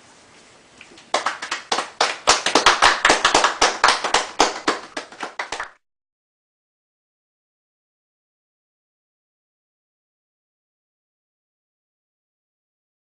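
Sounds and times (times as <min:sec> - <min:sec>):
audience applauding: 0:01.1 - 0:05.8.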